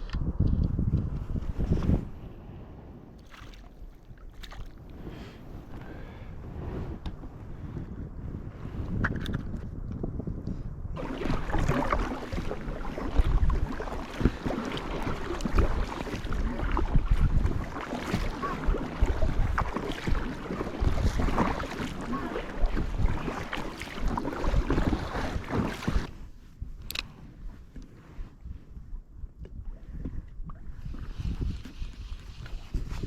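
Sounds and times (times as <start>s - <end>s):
wind buffeting microphone: 0.0s - 33.0s
water splashing against kayak: 1.6s - 7.8s, 11.0s - 28.4s.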